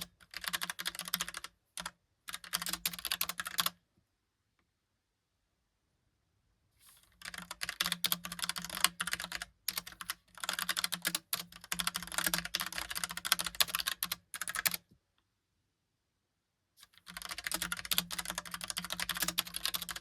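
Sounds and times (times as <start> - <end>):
mechanical keyboard typing: 0.0 - 3.8, 7.2 - 14.8, 17.0 - 20.0.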